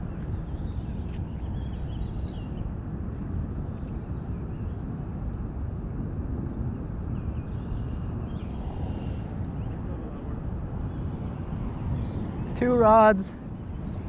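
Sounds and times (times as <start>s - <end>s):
low outdoor rumble: 6.3s - 14.0s.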